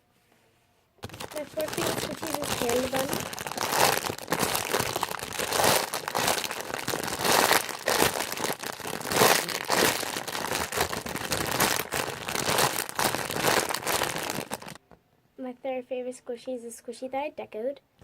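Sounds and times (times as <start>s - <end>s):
squishy toy crinkling and rustling: 1.0s - 14.8s.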